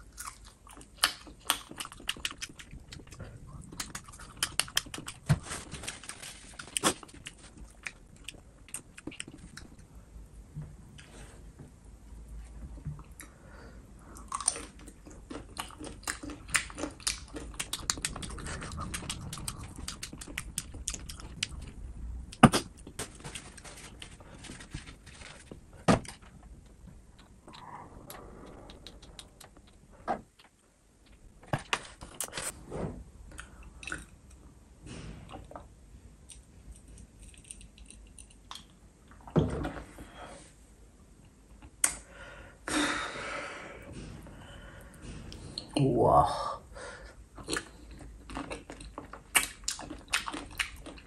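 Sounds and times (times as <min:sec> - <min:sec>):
chewing meat: 0:00.0 - 0:09.8, 0:14.1 - 0:25.6, 0:27.2 - 0:31.3, 0:47.4 - 0:51.0
wet mouth clicks and smacks: 0:01.0 - 0:05.3, 0:16.0 - 0:21.7.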